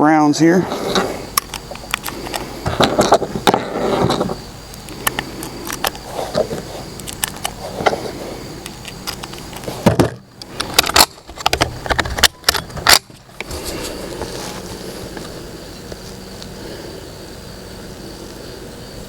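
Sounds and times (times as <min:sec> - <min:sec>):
rifle handling clicks and rattles: 0:07.0 - 0:08.0, 0:08.6 - 0:09.7, 0:10.5 - 0:13.5.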